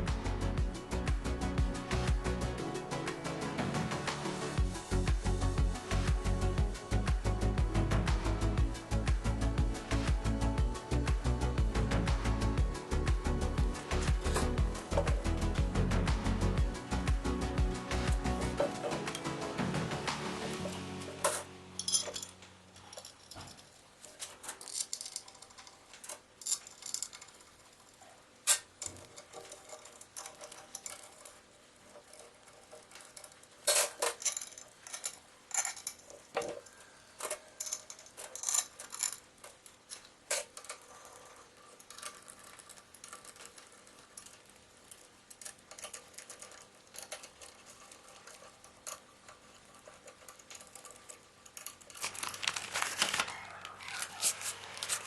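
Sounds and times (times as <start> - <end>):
metallic clinks of tools: 21.2 - 23.7.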